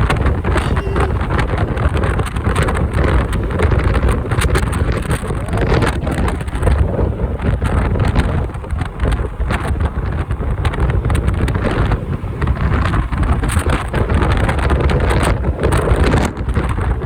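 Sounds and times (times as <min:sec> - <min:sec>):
motorcycle engine: 0:00.0 - 0:05.4
road noise: 0:00.0 - 0:17.0
wind buffeting microphone: 0:00.0 - 0:17.0.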